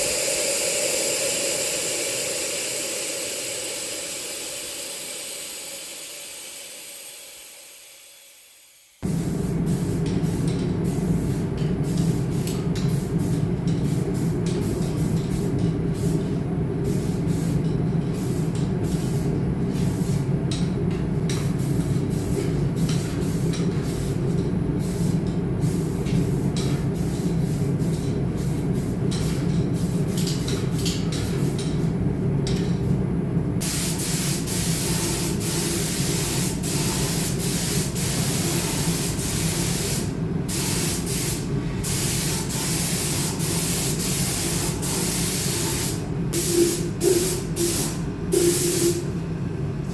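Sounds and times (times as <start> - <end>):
compressed air hissing: 0.0 - 7.8, 33.6 - 49.1.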